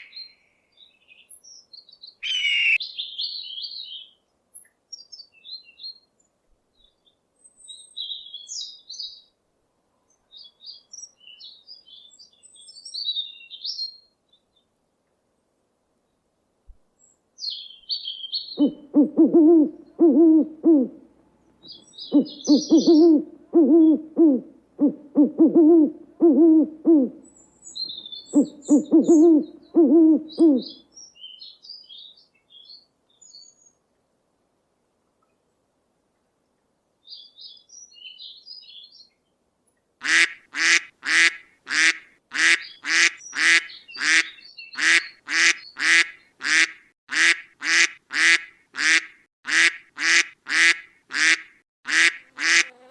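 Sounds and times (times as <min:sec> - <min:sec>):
songbird singing: 0:00.0 - 0:09.4, 0:10.0 - 0:14.8, 0:16.0 - 0:34.0, 0:36.2 - 0:39.4, 0:42.4 - 0:46.5
owl hooting: 0:02.2 - 0:02.8, 0:18.6 - 0:21.1, 0:22.0 - 0:27.4, 0:28.0 - 0:30.8
small bird chirping: 0:17.0 - 0:20.0, 0:21.6 - 0:24.0, 0:27.2 - 0:33.8, 0:42.6 - 0:46.3.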